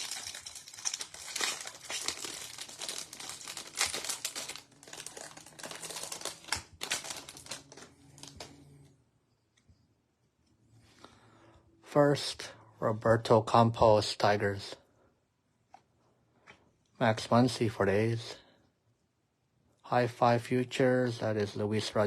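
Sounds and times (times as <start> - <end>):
card pack wrappers crinkling: 0.0 - 8.6.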